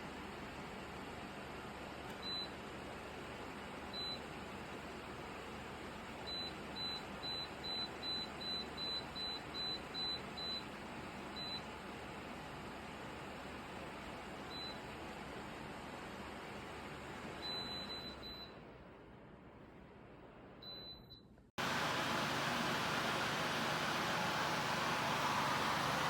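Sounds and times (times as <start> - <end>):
fan control beeps: 2.1 - 2.6, 3.9 - 4.3, 6.2 - 11.8, 14.4 - 14.9, 17.4 - 18.6, 20.6 - 21.4
fan airflow hiss: 21.6 - 26.0.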